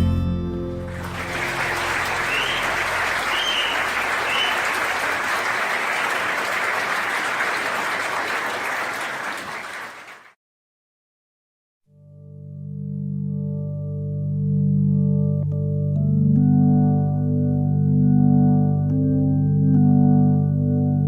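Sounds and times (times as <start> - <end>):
audience applauding: 0.8 - 10.4
short rising whistles: 1.3 - 5.1.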